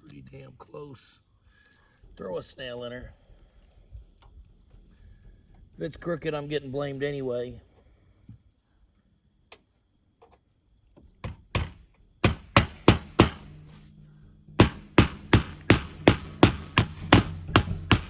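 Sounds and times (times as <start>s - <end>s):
hammer driving a nail: 11.2s - 13.6s, 14.6s - 18.0s.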